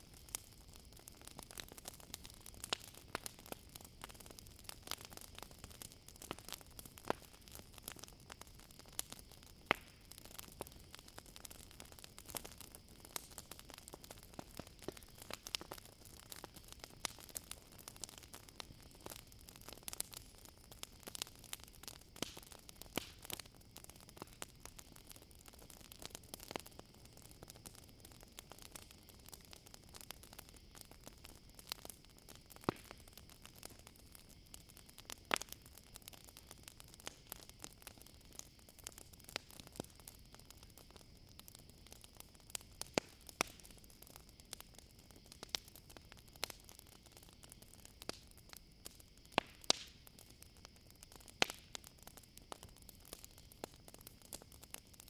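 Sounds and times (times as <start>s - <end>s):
campfire crackling: 0.0s - 55.0s
crickets chirring: 25.9s - 55.0s.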